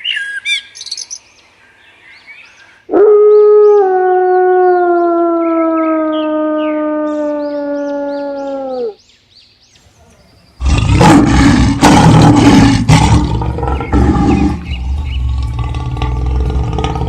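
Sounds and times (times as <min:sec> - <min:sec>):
animal howl: 0:02.9 - 0:09.0
loud rough roar: 0:10.6 - 0:17.0.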